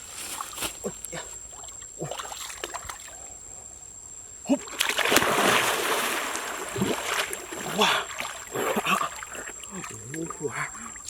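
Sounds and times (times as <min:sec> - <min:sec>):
water splashing and sloshing: 0:00.2 - 0:03.3, 0:04.6 - 0:11.0.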